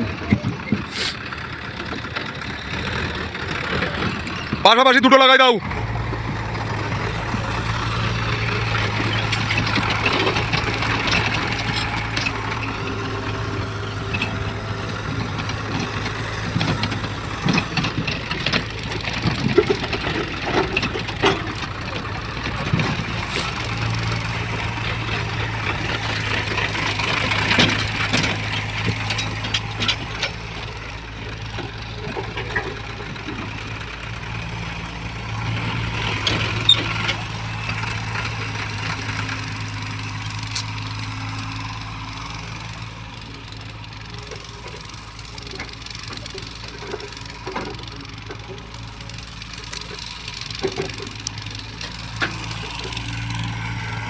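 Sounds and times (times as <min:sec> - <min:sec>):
heavy diesel machinery running: 0:00.0 - 0:54.0
metallic knocks and clanks: 0:07.6 - 0:34.6.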